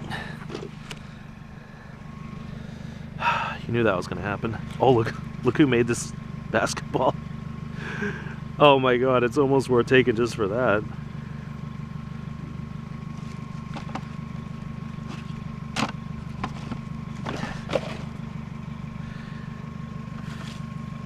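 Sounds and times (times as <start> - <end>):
vehicle engine idling: 0.0 - 21.0
items clicking and rustling: 13.2 - 14.2.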